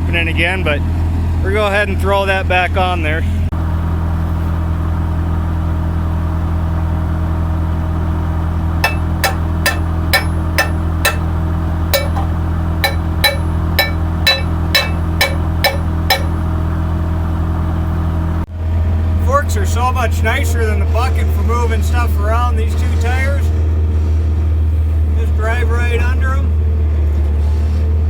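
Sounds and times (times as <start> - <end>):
sharp metallic knocks: 8.8 - 11.4, 12.0 - 16.4.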